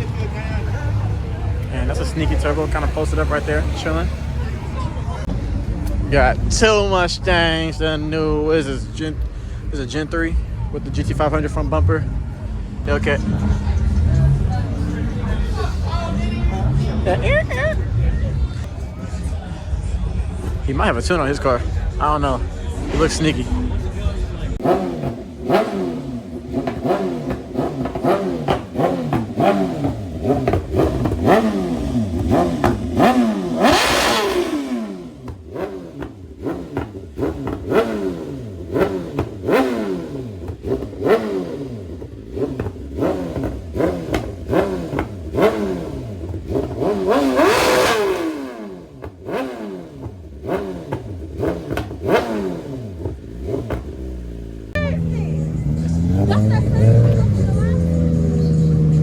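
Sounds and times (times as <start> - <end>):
car engine revving: 0.0 - 59.0
exhaust pops: 24.0 - 58.4.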